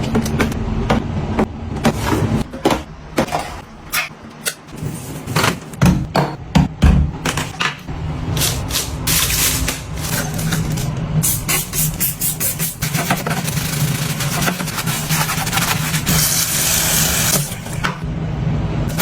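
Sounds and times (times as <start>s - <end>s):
steady low hum: 0.0s - 19.0s
rubbing: 11.6s - 17.8s.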